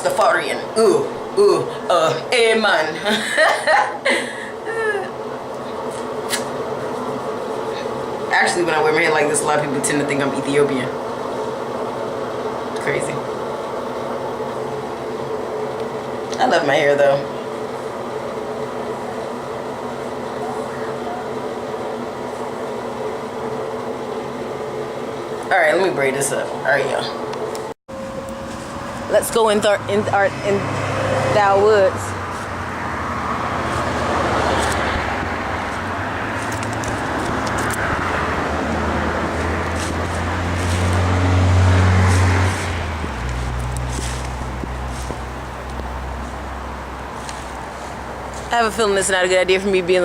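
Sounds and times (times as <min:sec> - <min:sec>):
steady mechanical hum with tones: 0:00.0 - 0:50.0
road noise: 0:27.9 - 0:50.0.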